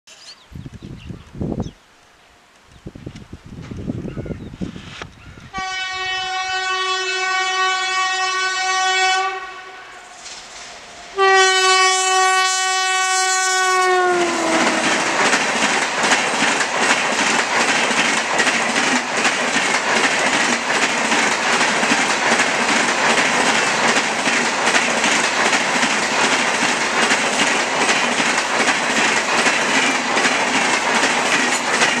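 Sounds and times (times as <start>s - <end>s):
locomotive horn blasts: 5.5s - 10.2s, 11.1s - 15.2s
train coaches rushing past: 9.9s - 32.0s
wheels clacking over rail joints: 14.3s - 32.0s.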